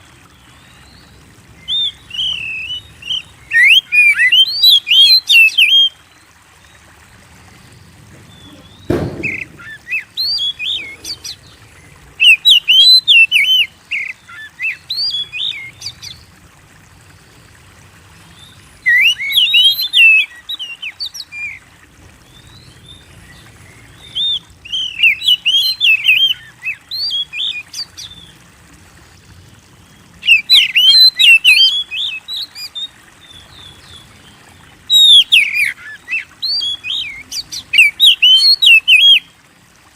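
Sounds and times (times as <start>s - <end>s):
bird singing whistles and chirps: 1.6s - 6.0s, 8.3s - 11.4s, 12.2s - 15.8s, 18.8s - 21.6s, 24.0s - 28.2s, 30.2s - 32.9s, 34.9s - 39.3s
dull thump: 8.1s - 9.8s.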